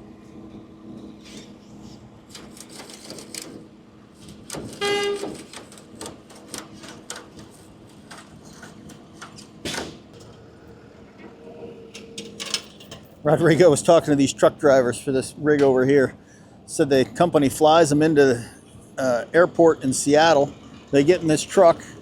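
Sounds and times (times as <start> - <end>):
vehicle horn honk: 4.7 - 5.4.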